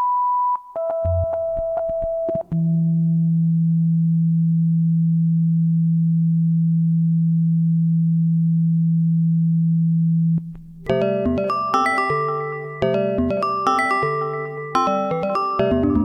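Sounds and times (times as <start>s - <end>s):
keyboard-like synth notes: 0.8s - 2.5s.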